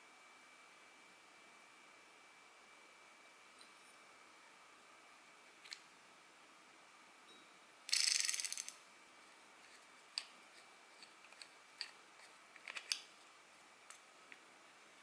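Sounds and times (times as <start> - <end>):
fishing reel rapid clicks: 7.9 - 8.8
small metal parts clicking: 7.9 - 8.8.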